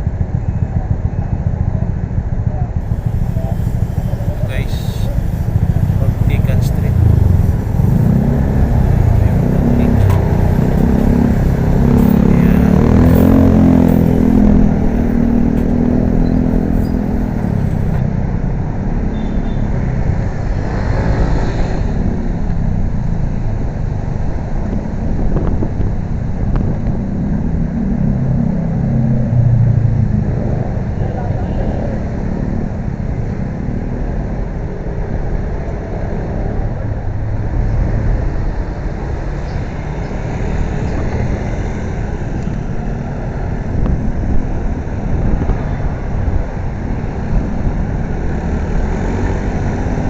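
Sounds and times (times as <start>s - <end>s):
motorcycle engine and road rumble: 0.0s - 50.0s
wind buffeting microphone: 2.0s - 18.0s
passing vehicle noise: 2.8s - 19.1s, 19.7s - 50.0s.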